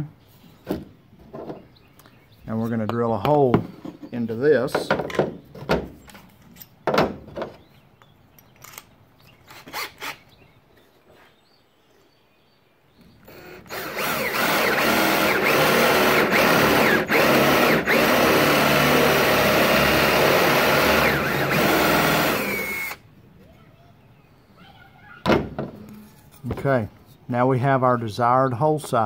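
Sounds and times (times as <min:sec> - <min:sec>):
knocks and handling sounds: 0:00.5 - 0:02.1, 0:02.7 - 0:10.1
power drill boring through plywood: 0:13.2 - 0:23.0.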